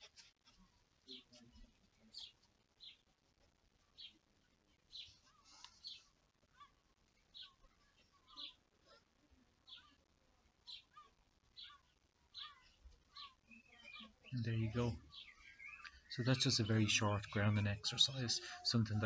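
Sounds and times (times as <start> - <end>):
soft low bird twittering: 10.7 - 19.0.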